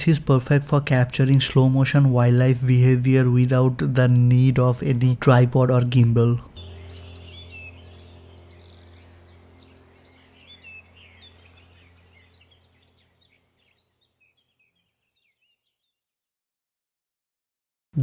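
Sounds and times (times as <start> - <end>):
low steady hum: 0.0 - 14.5
small birds chirping: 6.5 - 16.0.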